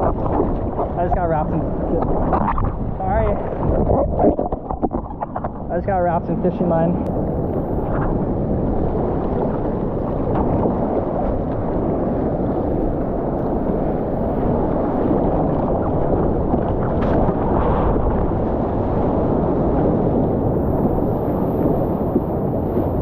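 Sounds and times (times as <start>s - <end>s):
ocean surf: 0.0s - 23.0s
wind on microphone: 0.0s - 23.0s.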